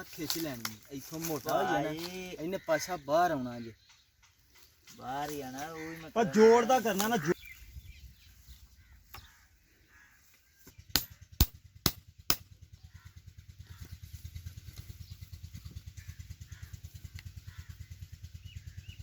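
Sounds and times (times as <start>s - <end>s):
sharp metal knocks: 10.9s - 12.5s.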